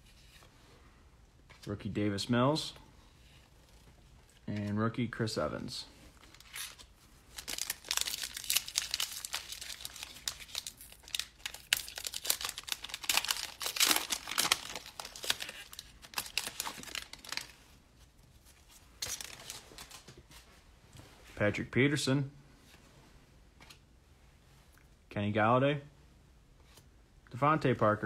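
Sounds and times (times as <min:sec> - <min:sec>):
cards being handled: 0:06.2 - 0:17.6, 0:18.4 - 0:20.5
wrapper crinkling and tearing: 0:06.2 - 0:17.6, 0:19.0 - 0:20.1.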